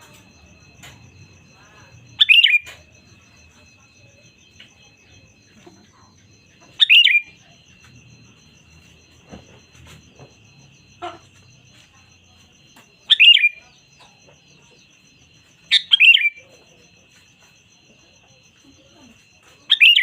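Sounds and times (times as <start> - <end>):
faint steady high tone: 0.0 - 20.0
bird chattering call: 6.7 - 7.3.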